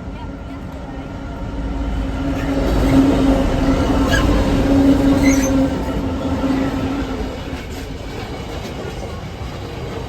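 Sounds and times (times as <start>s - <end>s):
freight train rumbling past: 0.0s - 10.0s.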